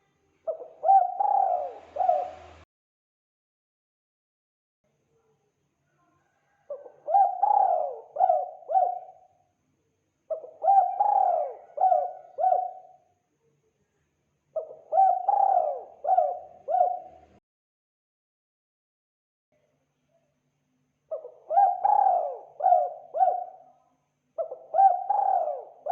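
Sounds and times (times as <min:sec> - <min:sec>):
dove cooing: 0:00.5 - 0:02.6, 0:06.6 - 0:09.3, 0:10.3 - 0:13.0, 0:14.6 - 0:17.4, 0:21.1 - 0:23.7, 0:24.4 - 0:25.9.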